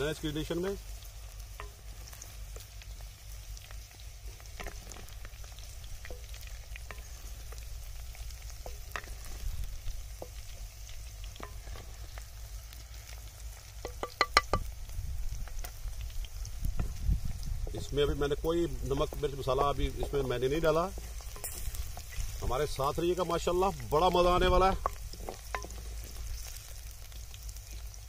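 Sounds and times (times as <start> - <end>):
vegetables sizzling in oil: 0.0 - 28.0
wooden spatula scraping clay pot: 8.6 - 9.6, 18.9 - 22.8, 24.1 - 26.7.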